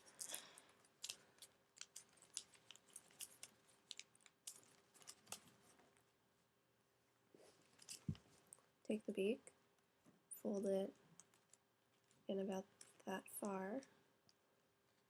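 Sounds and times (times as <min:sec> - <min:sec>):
paper crinkling and rustling: 0:00.0 - 0:06.0.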